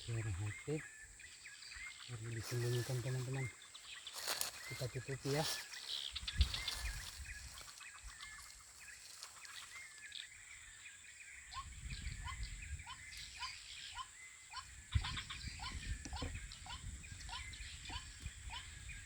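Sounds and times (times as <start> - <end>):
handling rustling: 4.2 - 5.8.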